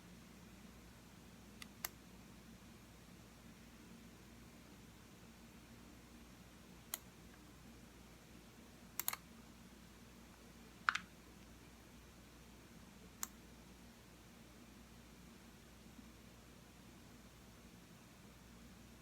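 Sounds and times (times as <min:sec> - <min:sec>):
faint room hum: 0:00.0 - 0:19.0
computer mouse clicks: 0:01.6 - 0:02.0, 0:06.9 - 0:07.1, 0:09.0 - 0:09.2, 0:10.8 - 0:11.1, 0:13.2 - 0:13.4.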